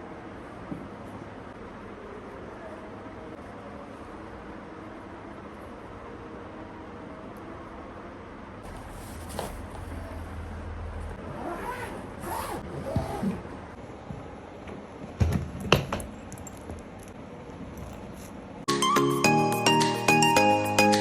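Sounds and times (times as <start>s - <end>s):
rustling handling noise: 8.6s - 10.4s.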